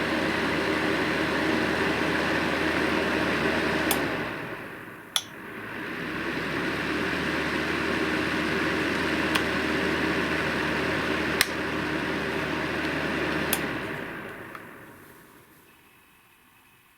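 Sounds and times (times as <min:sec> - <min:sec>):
fan heater running: 0:00.0 - 0:16.9
sharp clicks: 0:05.2 - 0:05.4.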